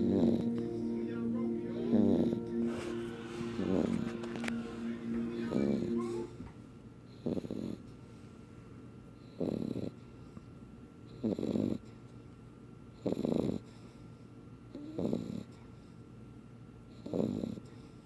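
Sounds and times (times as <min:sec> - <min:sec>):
puppy snoring: 0:00.0 - 0:00.6, 0:01.8 - 0:02.4, 0:07.1 - 0:07.8, 0:09.2 - 0:10.0, 0:11.1 - 0:12.0, 0:12.9 - 0:14.0, 0:14.7 - 0:15.7, 0:16.9 - 0:18.0.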